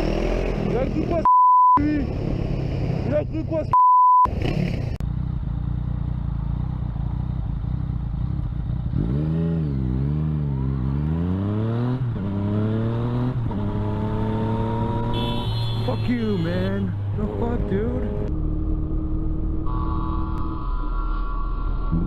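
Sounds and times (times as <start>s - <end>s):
motorcycle engine accelerating: 4.3s - 15.2s.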